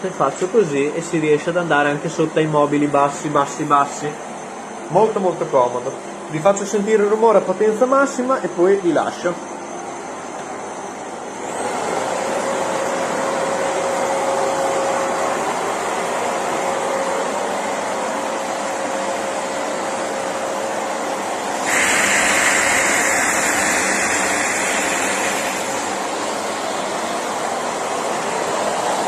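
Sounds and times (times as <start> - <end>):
vacuum cleaner running: 8.2 - 29.0.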